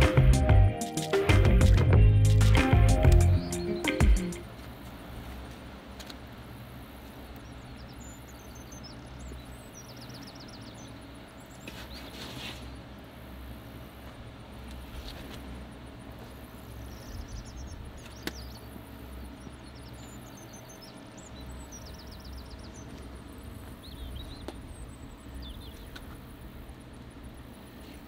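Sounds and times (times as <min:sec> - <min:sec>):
small birds chirping: 0:00.0 - 0:04.9, 0:06.2 - 0:13.0, 0:14.2 - 0:28.0.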